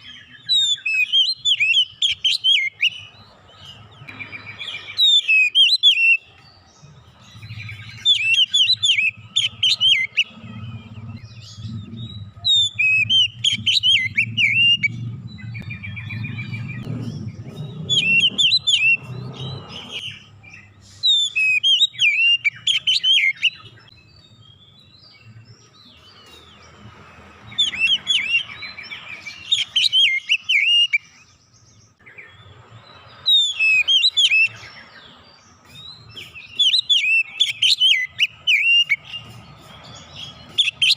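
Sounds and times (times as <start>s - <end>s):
bird singing whistles: 0.0s - 3.2s, 4.1s - 6.6s, 7.3s - 25.2s, 27.5s - 31.4s, 32.0s - 40.9s
low hum: 10.2s - 20.6s.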